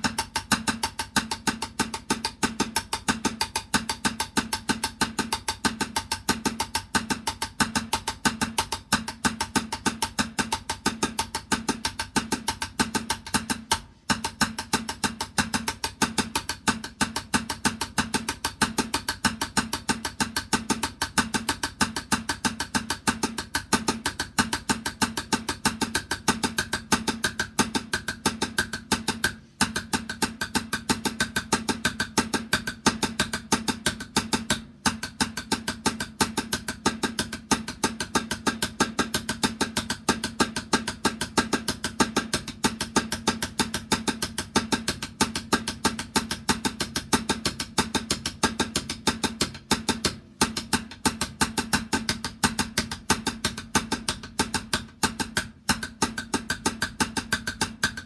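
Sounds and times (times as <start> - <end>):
fast even drumming: 0.0 - 58.0.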